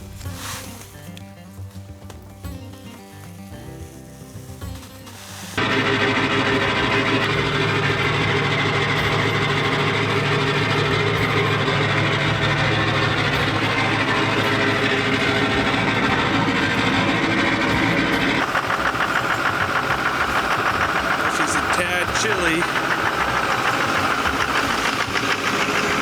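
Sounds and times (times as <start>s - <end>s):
diesel pickup engine running: 5.6s - 26.0s.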